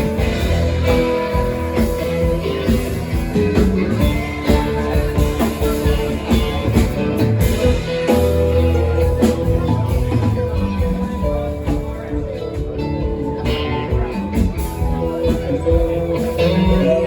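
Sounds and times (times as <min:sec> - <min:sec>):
electric guitar: 0:00.0 - 0:17.0
rock band playing: 0:00.0 - 0:17.0.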